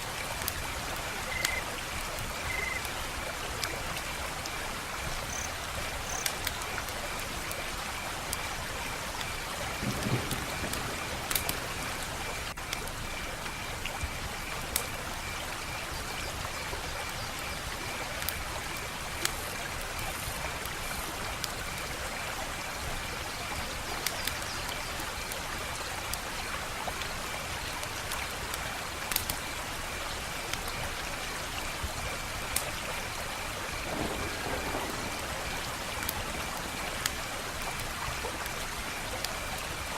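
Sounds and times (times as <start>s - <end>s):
wood fire crackling: 0.1s - 15.2s, 23.9s - 31.4s, 32.2s - 39.9s.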